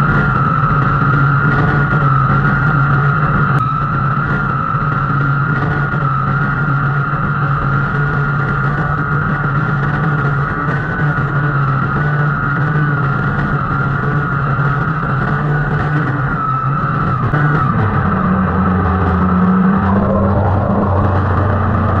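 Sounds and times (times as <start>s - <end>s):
engine running at high speed: 0.0s - 22.0s.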